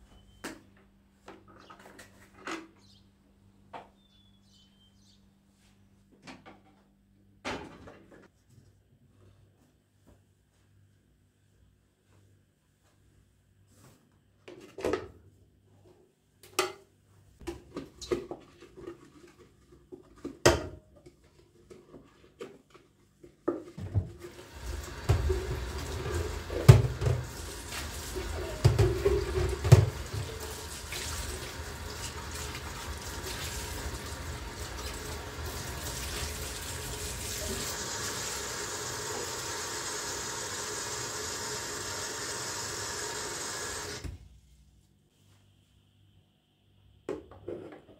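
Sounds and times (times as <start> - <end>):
kitchen tap running into sink: 24.2 - 44.1.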